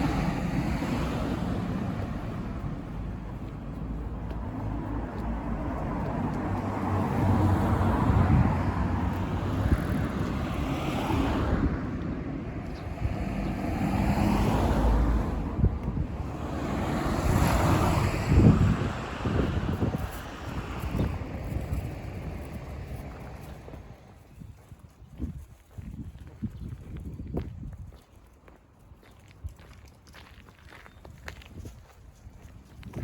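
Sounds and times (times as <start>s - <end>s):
low vehicle hum: 0.0s - 24.2s
wind gusting on microphone: 0.0s - 33.0s.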